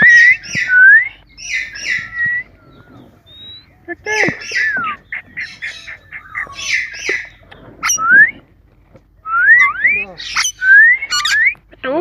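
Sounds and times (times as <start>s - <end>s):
parrot squawks and chirps: 0.0s - 8.3s, 9.5s - 11.6s
parrot sliding whistles: 9.3s - 11.6s.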